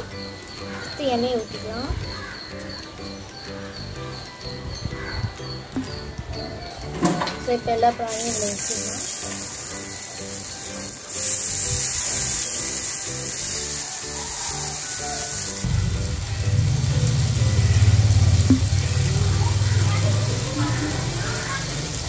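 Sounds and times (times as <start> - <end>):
prawns sizzling in oil: 8.0 - 22.0.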